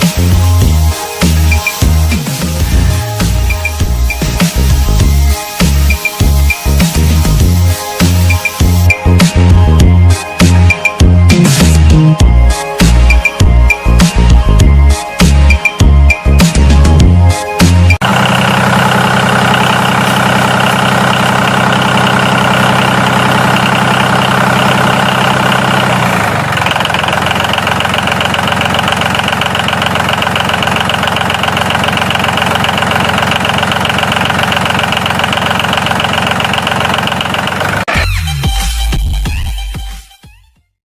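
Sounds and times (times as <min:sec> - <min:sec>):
tractor engine idling: 0:00.0 - 0:10.9, 0:17.6 - 0:38.0.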